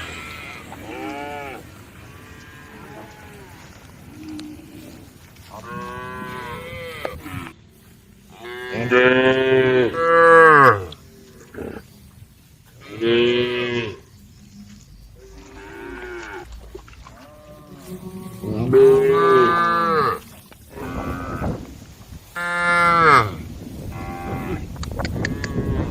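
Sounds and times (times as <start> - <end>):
cows mooing: 0.0 - 7.6, 8.3 - 11.9, 12.8 - 14.1, 15.2 - 21.8, 22.4 - 25.9.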